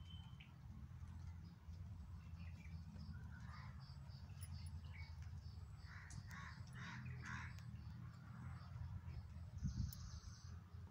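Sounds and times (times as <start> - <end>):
faint high chirping: 0.0 - 0.6.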